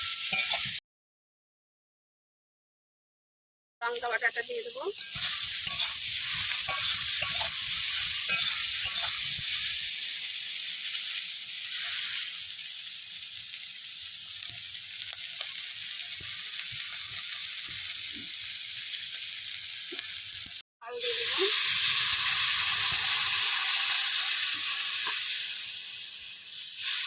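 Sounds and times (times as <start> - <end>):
paste sizzling in hot oil: 0.0 - 0.8, 3.8 - 27.0
spatula stirring and scraping: 0.0 - 0.8, 4.9 - 9.8.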